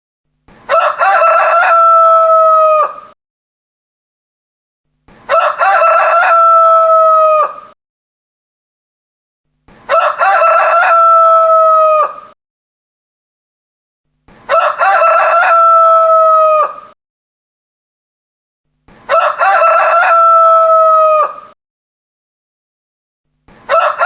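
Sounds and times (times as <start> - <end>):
rooster crowing: 0.7 - 3.2, 5.3 - 7.8, 9.9 - 12.4, 14.5 - 17.0, 19.1 - 21.6, 23.7 - 24.0.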